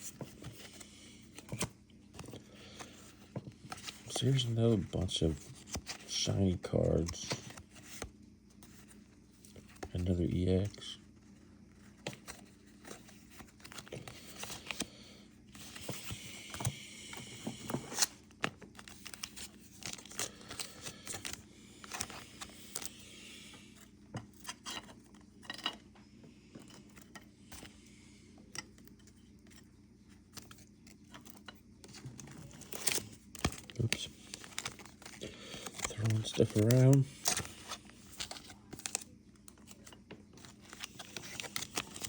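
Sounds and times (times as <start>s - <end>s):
plastic wrappers crinkling: 30.5s - 42.0s.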